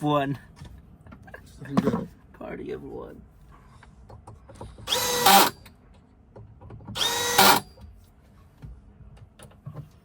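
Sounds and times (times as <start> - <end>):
cordless drill driving screw: 4.8 - 5.6, 6.9 - 7.7.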